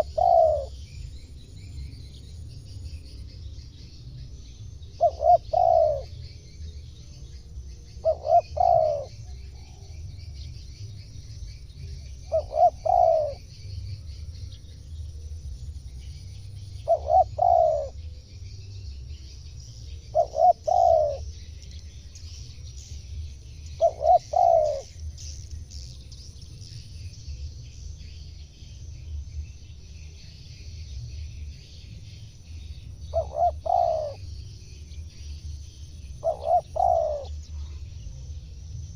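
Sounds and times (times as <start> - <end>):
dove cooing: 0.0 - 0.8, 4.9 - 6.4, 8.0 - 10.0, 12.1 - 13.5, 16.7 - 18.2, 20.0 - 21.4, 23.6 - 24.9, 33.0 - 34.3, 36.1 - 38.2
small birds chirping: 0.0 - 38.9.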